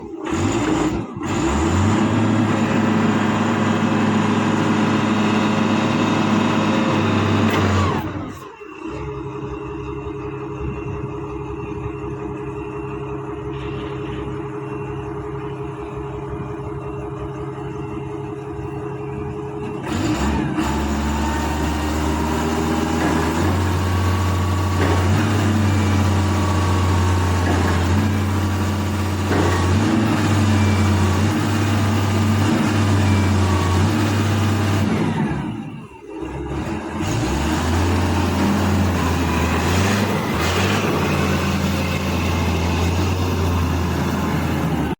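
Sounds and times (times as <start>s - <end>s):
diesel forklift engine: 0.0s - 44.9s.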